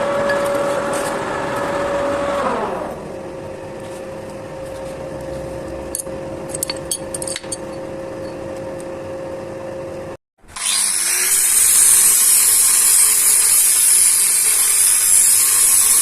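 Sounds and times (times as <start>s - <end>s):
workshop machine humming: 0.0s - 12.8s.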